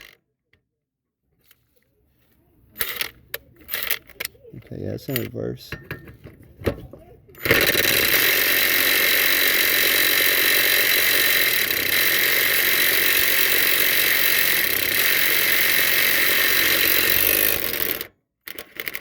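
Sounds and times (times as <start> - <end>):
impact driver hammering: 7.4 - 19.0.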